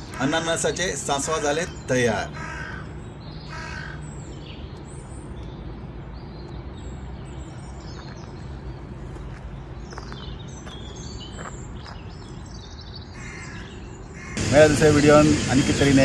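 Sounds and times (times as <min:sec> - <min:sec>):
bird caw: 0:00.0 - 0:00.7, 0:02.2 - 0:04.1, 0:13.1 - 0:14.5.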